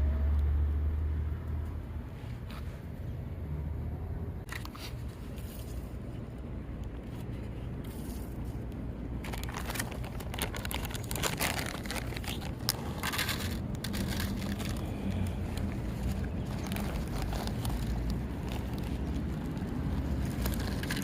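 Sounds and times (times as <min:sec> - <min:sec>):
low outdoor rumble: 0:00.0 - 0:21.0
rustling and crinkling: 0:04.5 - 0:21.0.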